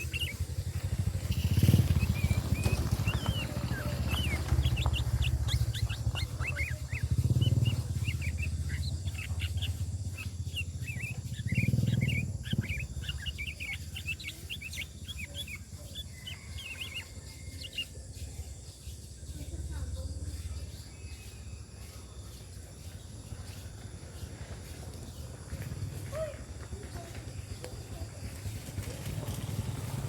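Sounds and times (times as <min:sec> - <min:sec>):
low rumbles: 0:00.0 - 0:17.1
bird chattering in high chirps: 0:00.0 - 0:24.3
steady low hum: 0:00.0 - 0:26.0.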